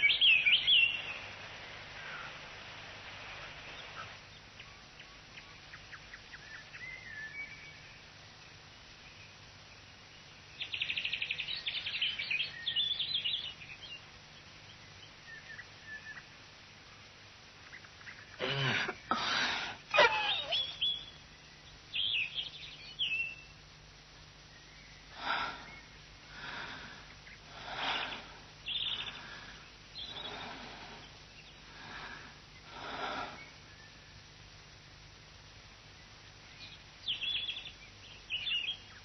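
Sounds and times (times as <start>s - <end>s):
birds chirping in a trill: 0.0s - 1.3s, 3.8s - 34.5s, 35.8s - 39.0s
loud animal call: 18.4s - 21.0s.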